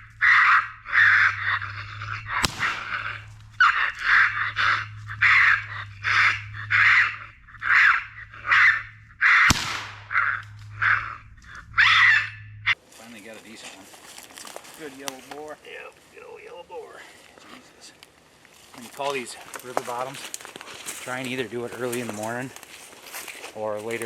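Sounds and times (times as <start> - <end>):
raccoon call squalling: 0.0 - 12.8
sharp cracks: 2.3 - 12.3.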